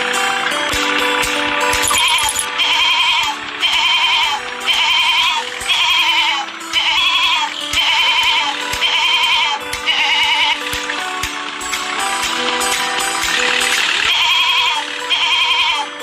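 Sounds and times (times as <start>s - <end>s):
background music: 0.0s - 16.0s
wavering sheep-like bleats: 2.0s - 10.6s, 14.1s - 16.0s.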